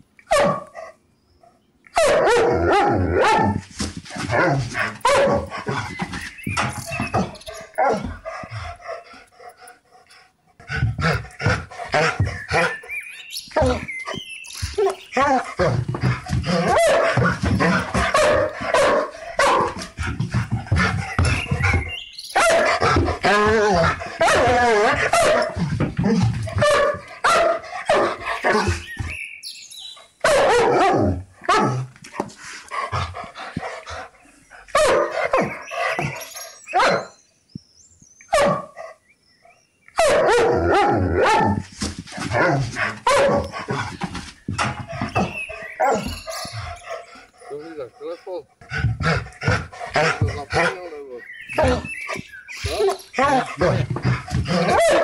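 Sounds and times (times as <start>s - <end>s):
dogs barking: 0.2s - 1.0s, 1.9s - 9.2s, 10.7s - 29.2s, 29.8s - 32.3s, 32.9s - 37.2s, 38.3s - 55.0s.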